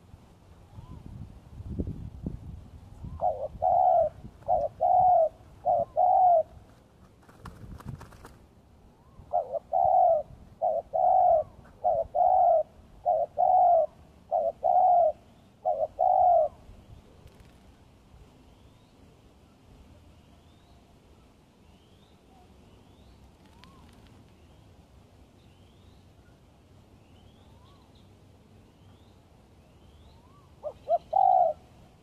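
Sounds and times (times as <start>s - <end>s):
dove cooing: 3.1s - 6.6s, 9.3s - 16.6s, 30.6s - 31.8s.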